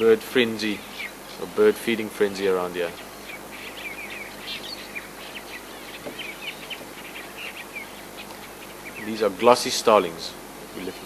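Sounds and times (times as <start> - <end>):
starlings chattering: 0.0 - 11.0.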